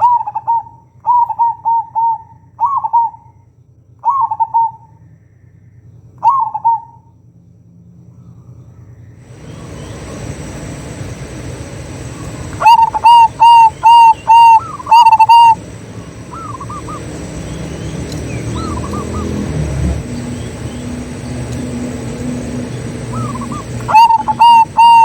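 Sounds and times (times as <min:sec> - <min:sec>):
dove cooing: 0:00.0 - 0:03.3, 0:04.0 - 0:04.9, 0:06.2 - 0:07.0, 0:09.3 - 0:25.0
distant doves cooing: 0:00.0 - 0:05.1, 0:06.2 - 0:07.1, 0:09.2 - 0:25.0
steady hiss: 0:09.2 - 0:25.0
thin high steady tone: 0:09.3 - 0:25.0.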